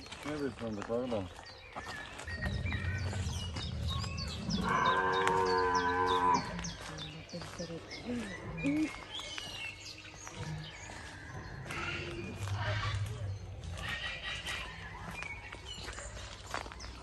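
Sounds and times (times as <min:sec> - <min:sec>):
small birds chirping: 0:00.0 - 0:17.0
drawn-out moo: 0:04.5 - 0:06.5.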